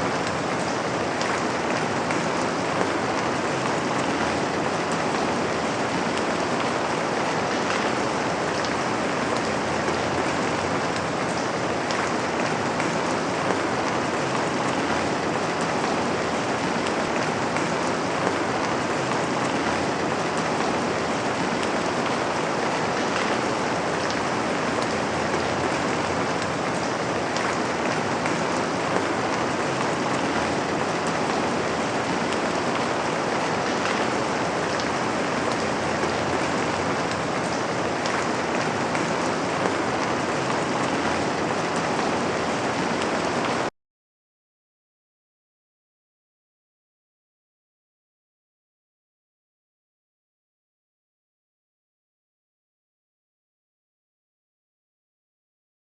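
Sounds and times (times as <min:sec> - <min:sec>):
steady rain hiss: 0:00.0 - 0:43.7.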